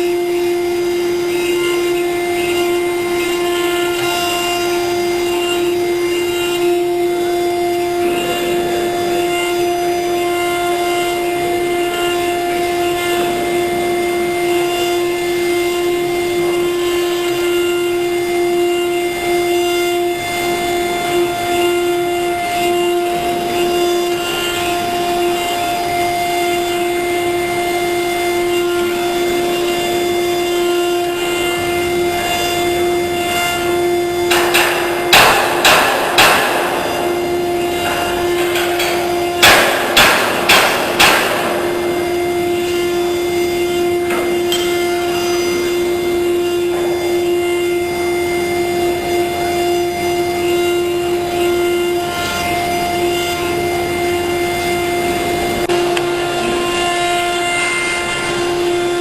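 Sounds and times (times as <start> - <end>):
router spindle whine: 0.0 - 59.0
loud rasping bursts: 1.3 - 54.4.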